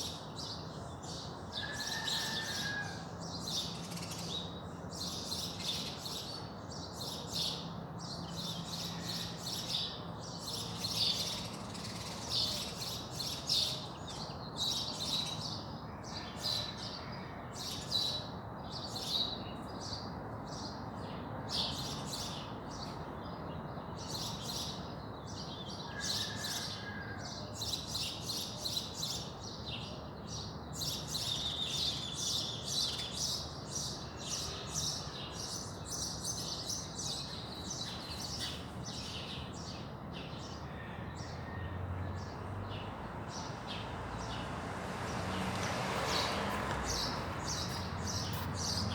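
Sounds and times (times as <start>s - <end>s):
small birds chirping: 42.6s - 48.9s.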